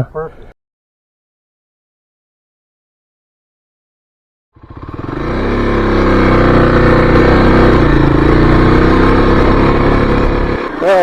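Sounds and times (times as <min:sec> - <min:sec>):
motorcycle engine running: 0:04.6 - 0:11.0.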